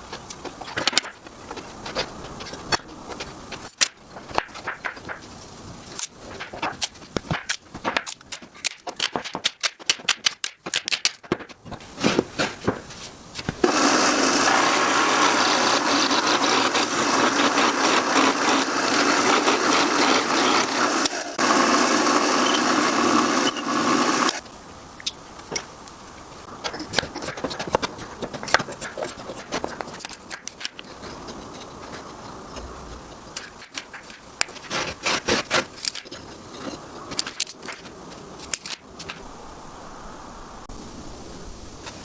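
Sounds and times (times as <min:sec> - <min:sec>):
power tool working wood: 0:13.6 - 0:24.4.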